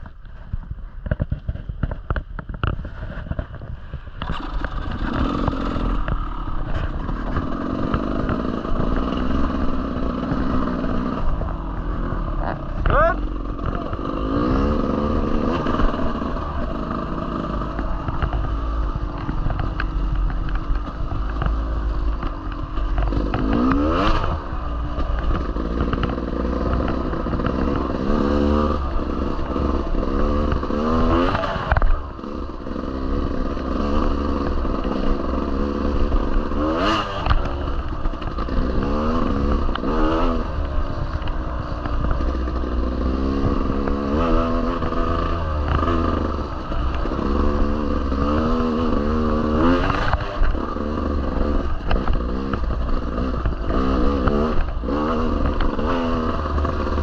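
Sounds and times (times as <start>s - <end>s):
bike rattling: 0.0s - 57.0s
wind rumble: 0.0s - 57.0s
dirt bike engine revving: 4.2s - 57.0s.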